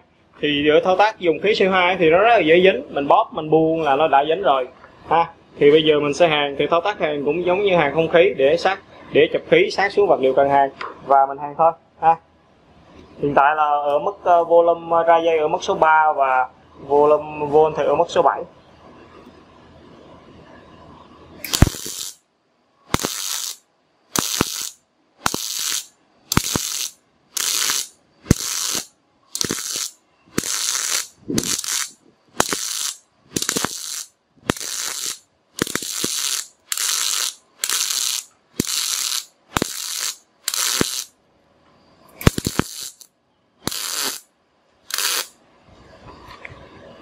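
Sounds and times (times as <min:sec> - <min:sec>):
welder arc crackling: 0:21.4 - 0:22.2, 0:22.9 - 0:41.1, 0:42.2 - 0:45.4.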